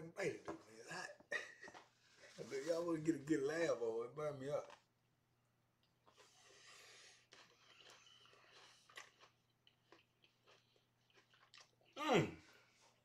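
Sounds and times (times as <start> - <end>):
chewing clicks and smacks: 7.3 - 11.8.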